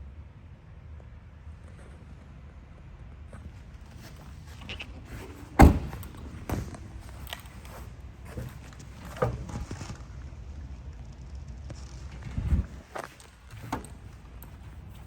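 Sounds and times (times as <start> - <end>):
car door shutting: 5.1 - 9.6, 13.5 - 14.1.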